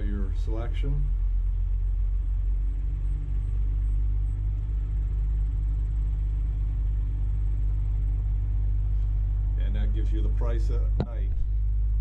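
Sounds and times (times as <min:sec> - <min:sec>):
engine idling rumble: 0:00.0 - 0:12.0.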